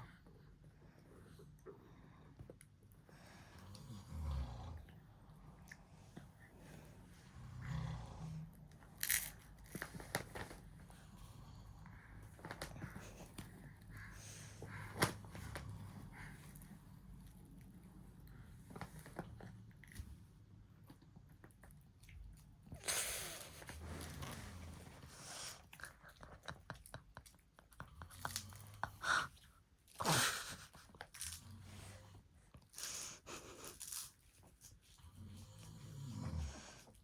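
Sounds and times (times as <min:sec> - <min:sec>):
chewing on a tug toy: 0:08.4 - 0:37.0.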